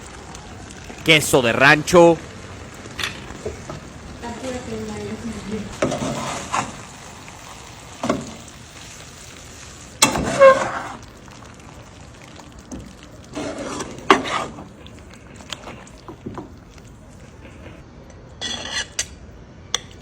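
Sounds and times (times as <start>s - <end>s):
faint steady sizzle: 0.0s - 20.0s
utensils clattering on cookware: 18.4s - 19.2s.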